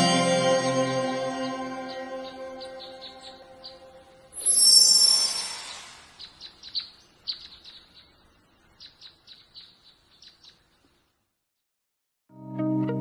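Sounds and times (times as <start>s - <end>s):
small birds chirping: 1.8s - 11.4s.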